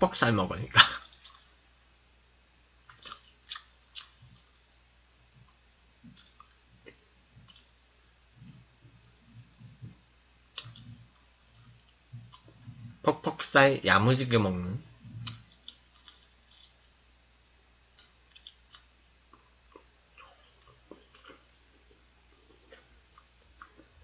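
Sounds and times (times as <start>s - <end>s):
faint chewing: 0.9s - 1.6s, 2.8s - 13.0s, 14.9s - 17.0s, 17.9s - 24.0s
soft low thumps: 8.3s - 13.1s
sharp mouth clicks: 15.2s - 16.8s.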